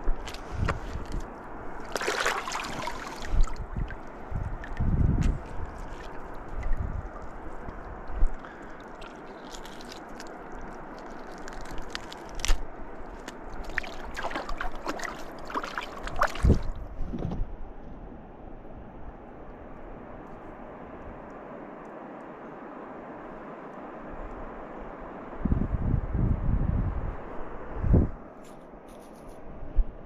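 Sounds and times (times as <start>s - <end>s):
water splashing and sloshing: 0.0s - 17.4s
flowing river water: 0.1s - 16.8s.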